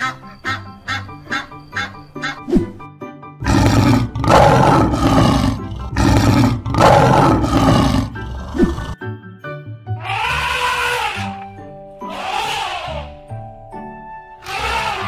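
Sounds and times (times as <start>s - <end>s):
background music: 0.0s - 15.0s
lion roaring: 3.4s - 9.0s.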